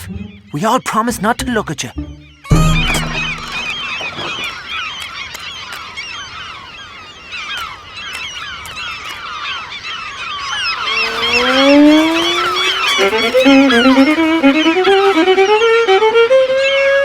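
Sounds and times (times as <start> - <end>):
seagulls calling: 0.0 - 16.8
fiddle bowed slide: 10.5 - 17.0.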